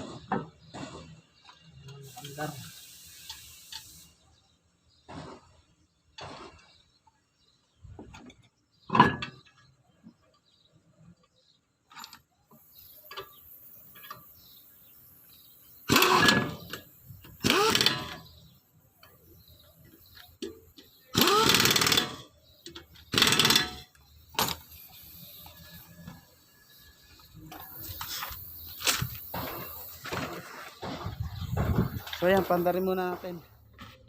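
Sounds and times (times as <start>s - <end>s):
impact wrench bursts: 0.0s - 4.2s, 15.8s - 19.1s, 19.8s - 32.9s.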